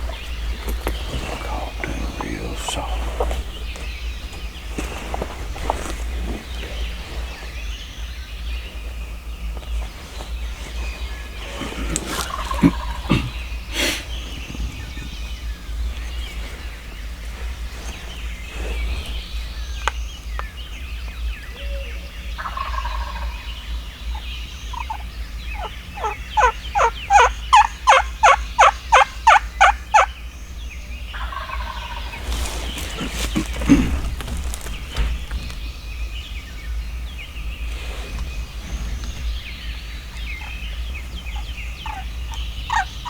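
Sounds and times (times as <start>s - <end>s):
turkey yelps: 24.1s - 25.0s, 25.6s - 30.1s, 40.3s - 43.0s.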